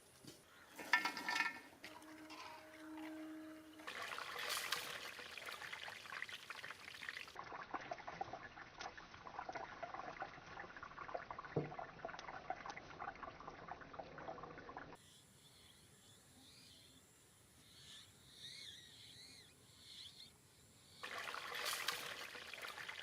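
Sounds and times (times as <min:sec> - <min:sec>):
food deep-frying in hot oil: 0:03.8 - 0:15.0, 0:21.0 - 0:23.0.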